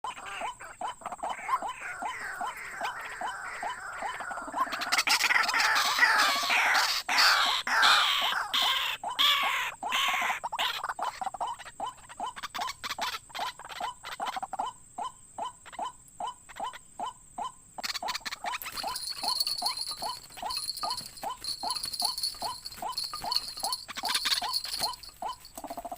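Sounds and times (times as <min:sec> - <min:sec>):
harsh croaking bird calls: 0:00.0 - 0:25.9
bird calling repeated notes: 0:17.8 - 0:25.9.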